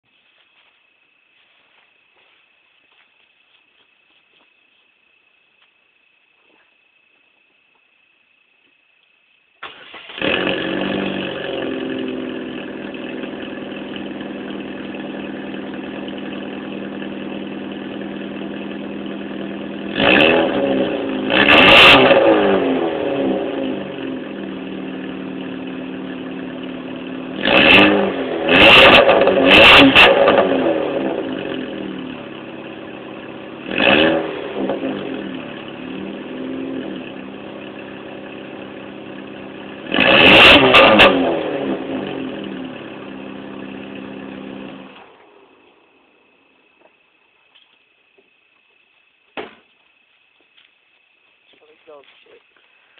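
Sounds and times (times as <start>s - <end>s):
car engine idling and revving: 9.6s - 46.5s.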